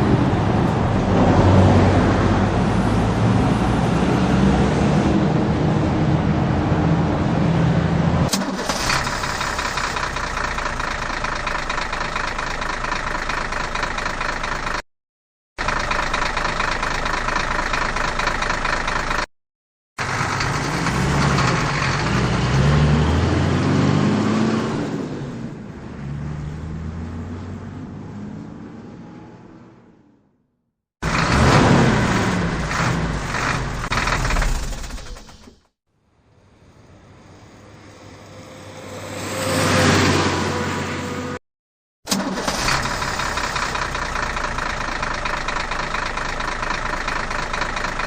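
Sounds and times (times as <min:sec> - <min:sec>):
vehicle engine humming: 0:00.0 - 0:14.8, 0:15.6 - 0:19.3, 0:20.0 - 0:24.4, 0:42.1 - 0:48.0
engine whine: 0:20.0 - 0:25.8.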